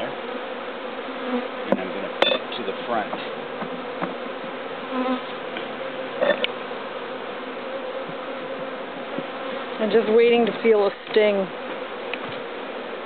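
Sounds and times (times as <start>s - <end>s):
bees buzzing in hive: 0.0s - 13.0s.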